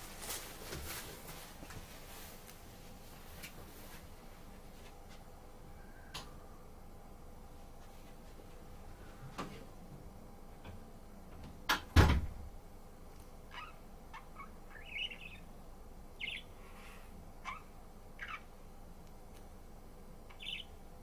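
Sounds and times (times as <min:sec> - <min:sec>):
budgerigar chirping: 0:13.5 - 0:15.5, 0:16.2 - 0:16.5, 0:17.4 - 0:18.5, 0:20.3 - 0:20.8.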